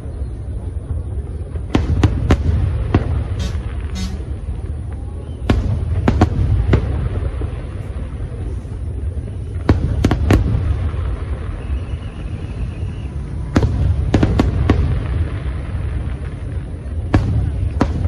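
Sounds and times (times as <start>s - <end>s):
firework shells bursting: 3.3s - 4.5s.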